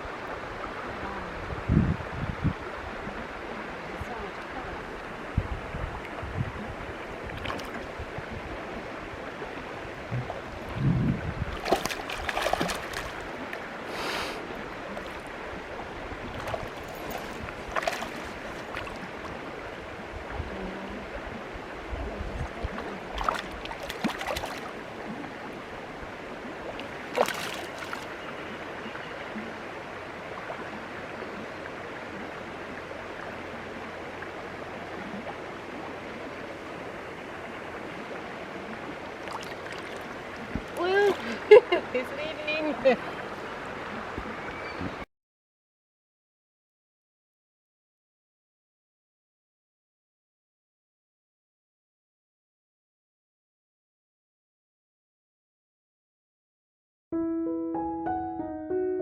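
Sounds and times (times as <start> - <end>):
stream water flowing: 0.0 - 45.0
short splashes or knocks: 7.3 - 7.9, 11.5 - 13.2, 16.3 - 19.0, 23.2 - 24.7, 26.8 - 28.1.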